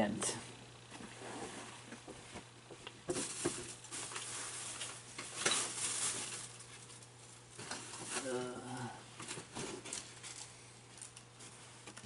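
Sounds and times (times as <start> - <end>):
small parts clicking and rustling: 9.2 - 12.0.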